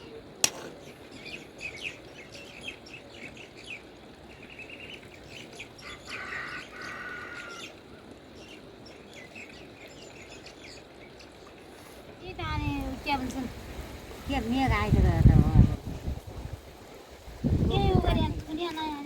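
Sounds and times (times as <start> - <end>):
small birds chirping: 0.0 - 13.6.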